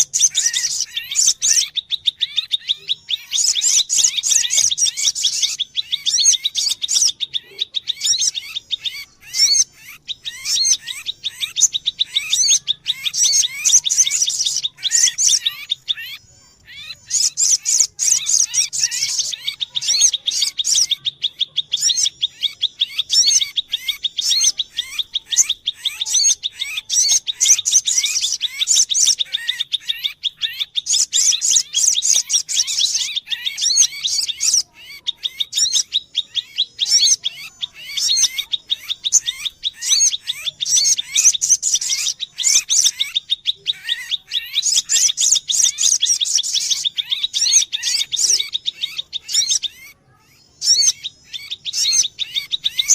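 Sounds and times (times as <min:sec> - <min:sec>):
bird chirping and trilling: 0:00.0 - 0:52.9.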